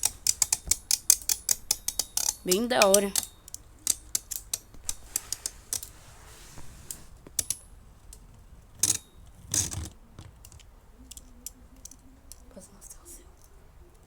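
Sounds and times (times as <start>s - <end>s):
plastic toy parts clicking: 0.0s - 5.9s, 7.4s - 12.5s.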